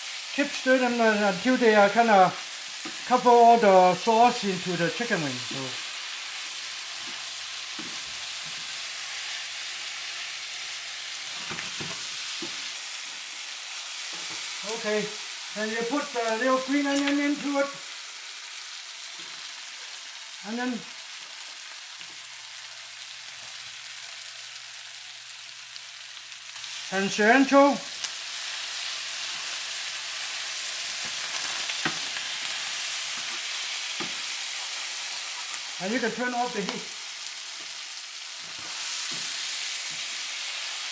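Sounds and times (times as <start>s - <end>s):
chicken frying in a wok: 0.0s - 40.9s.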